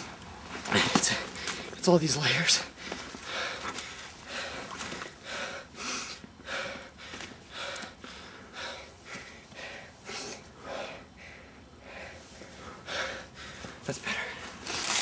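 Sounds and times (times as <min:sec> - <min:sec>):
person breathing hard: 0:02.7 - 0:14.6.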